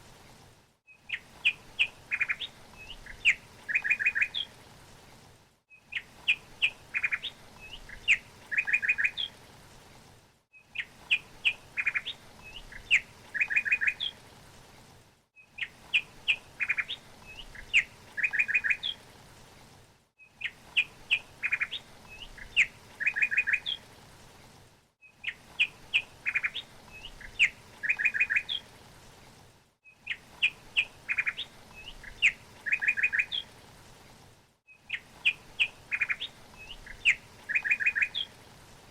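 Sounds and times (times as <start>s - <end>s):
small bird chirping and trilling: 0.9s - 4.5s, 10.6s - 14.2s, 25.0s - 28.6s, 29.9s - 33.5s, 34.7s - 38.3s.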